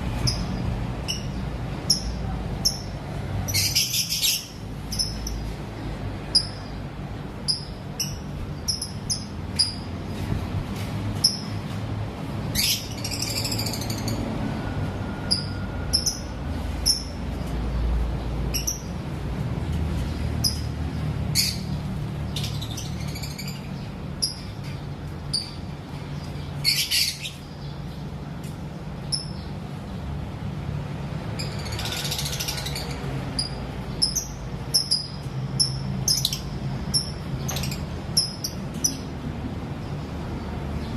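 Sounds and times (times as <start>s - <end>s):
lovebirds chirping and squawking: 0.1s - 5.6s, 7.5s - 10.4s, 11.2s - 11.7s, 12.4s - 14.4s, 15.3s - 17.6s, 18.4s - 19.0s, 20.0s - 28.1s, 31.3s - 39.1s.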